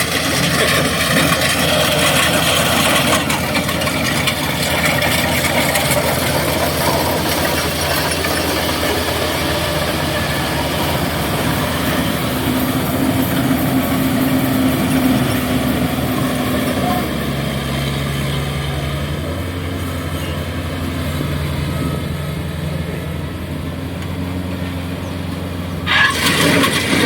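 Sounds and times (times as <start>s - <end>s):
diesel engine running: 0.0s - 27.0s
low hum: 0.8s - 17.9s.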